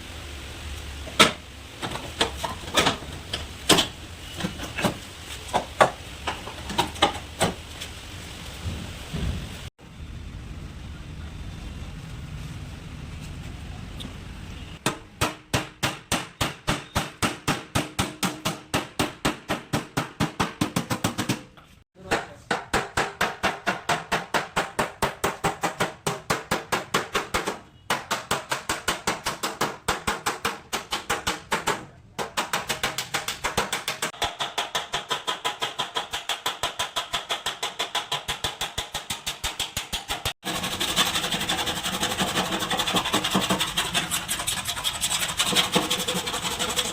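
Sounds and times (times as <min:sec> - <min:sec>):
hammer beating sheet metal: 0:14.8 - 0:44.2.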